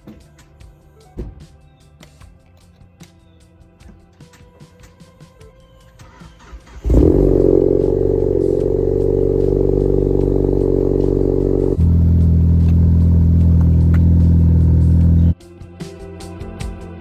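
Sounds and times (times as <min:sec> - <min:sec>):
car engine running: 0:06.8 - 0:15.4.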